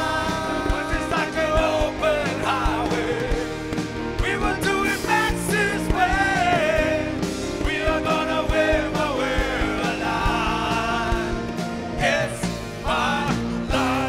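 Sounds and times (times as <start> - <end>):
rock song with singer: 0.0 - 14.0
steady drum beat: 0.0 - 14.0.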